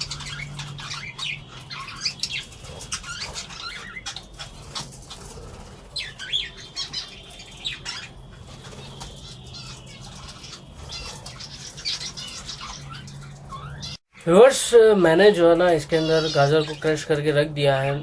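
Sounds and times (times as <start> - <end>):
birds chirping: 0.0 - 18.0
wing flutters: 2.3 - 6.3, 7.3 - 12.7.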